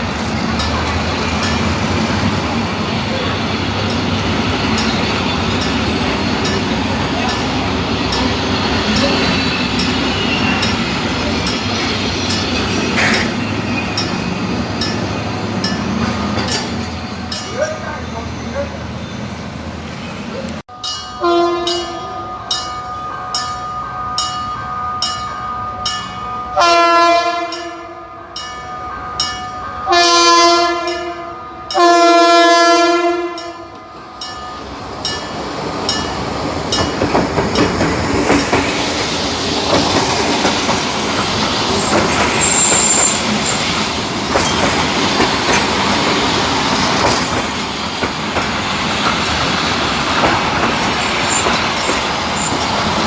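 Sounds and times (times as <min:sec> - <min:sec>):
train rumbling on rails: 0:00.0 - 0:53.0
train horn blasts: 0:21.2 - 0:23.1, 0:24.8 - 0:29.2, 0:29.8 - 0:33.8.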